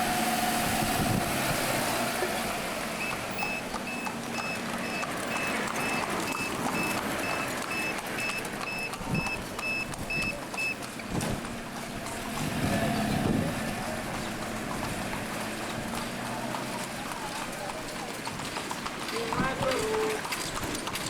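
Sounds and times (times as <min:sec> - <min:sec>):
street traffic: 0:00.0 - 0:21.0
rapid electronic beeping: 0:03.0 - 0:10.3.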